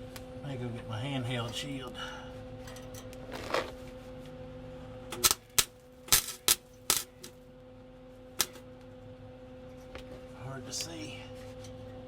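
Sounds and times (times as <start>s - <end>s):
steady low hum: 0.0s - 12.0s
welding arc crackling: 5.2s - 7.1s.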